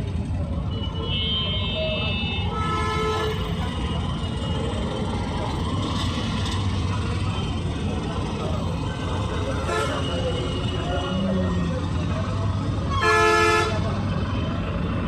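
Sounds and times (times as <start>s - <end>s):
street traffic rumble: 0.0s - 15.0s
car horn toot: 0.7s - 3.6s, 9.6s - 10.3s, 12.9s - 13.9s.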